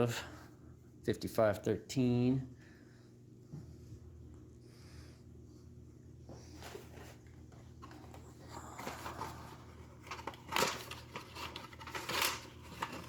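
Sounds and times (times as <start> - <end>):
cardboard boxes rustling and scraping: 6.4 - 13.0.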